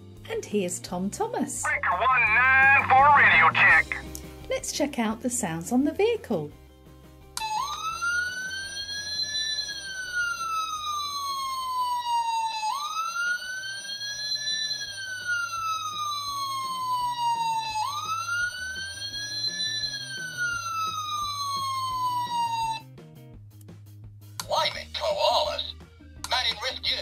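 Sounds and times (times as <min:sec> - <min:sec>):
electronic toy siren wailing: 0:07.4 - 0:22.8.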